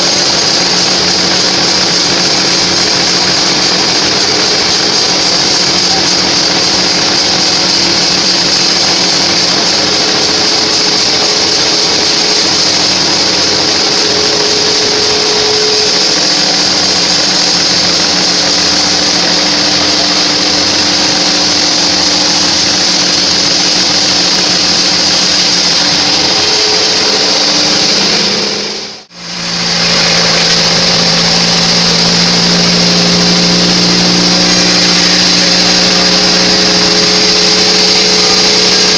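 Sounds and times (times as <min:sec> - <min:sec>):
bandsaw sawing log: 0:00.0 - 0:38.9.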